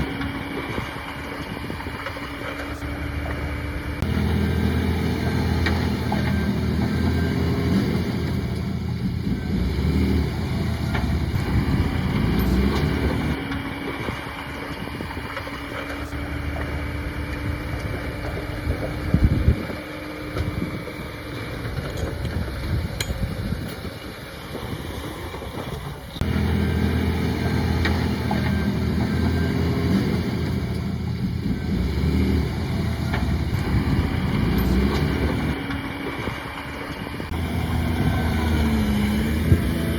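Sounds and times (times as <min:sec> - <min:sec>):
heavy diesel engine droning: 0:00.0 - 0:39.9.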